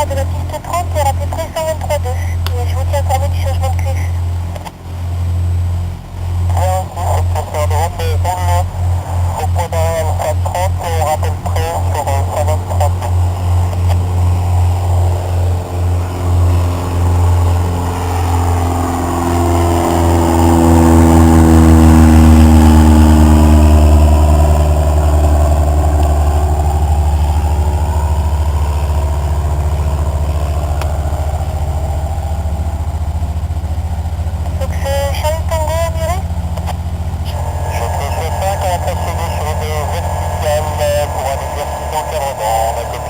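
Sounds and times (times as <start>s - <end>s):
light aircraft engine droning: 0.0s - 43.0s.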